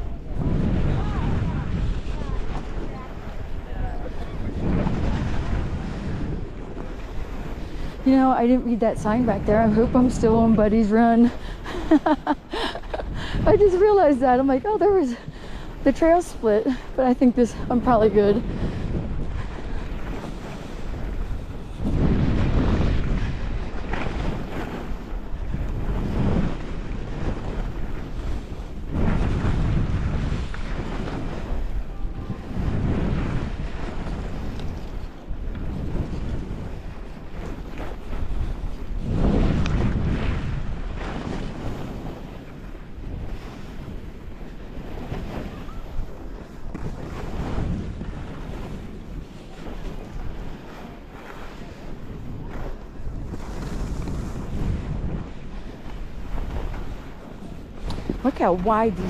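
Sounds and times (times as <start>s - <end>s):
wind rushing over microphone: 0.0s - 59.0s
skis swishing on snow: 48.6s - 54.8s.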